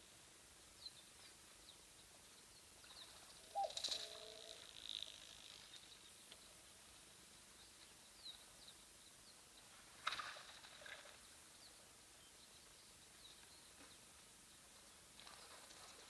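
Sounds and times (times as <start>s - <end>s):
outdoor background hiss: 0.0s - 16.0s
faint bird chirps: 0.8s - 6.2s.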